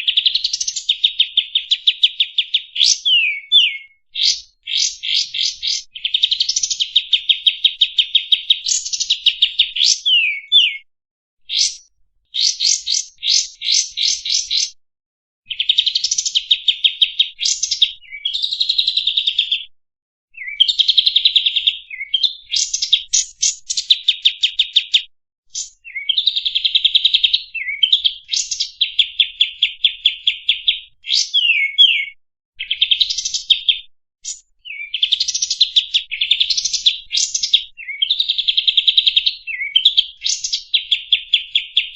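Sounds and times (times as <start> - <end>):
bird song with rapid trills: 0.0 - 10.9, 11.5 - 14.8, 15.5 - 19.7, 20.4 - 41.9.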